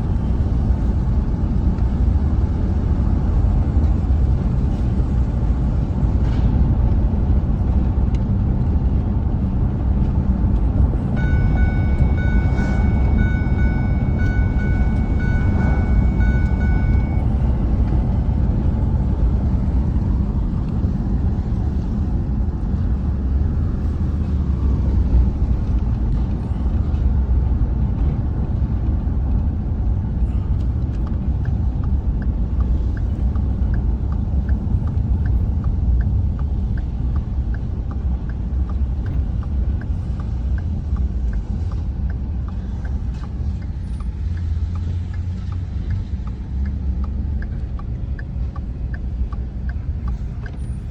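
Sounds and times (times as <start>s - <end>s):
truck engine and road rumble: 0.0s - 50.9s
light regular ticking: 10.0s - 50.9s.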